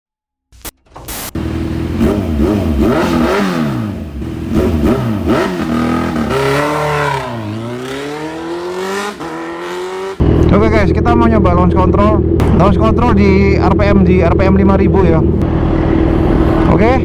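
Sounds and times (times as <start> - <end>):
motorcycle engine revving: 1.4 - 17.0.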